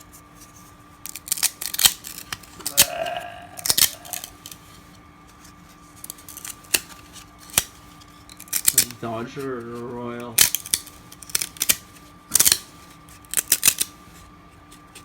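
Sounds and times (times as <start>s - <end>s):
trading cards clicking and snapping: 1.0s - 2.9s, 3.6s - 4.6s, 6.0s - 9.0s, 10.3s - 14.0s.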